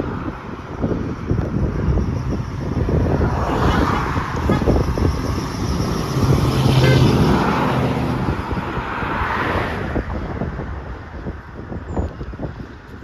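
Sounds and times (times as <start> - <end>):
truck passing by: 0.1 - 11.0.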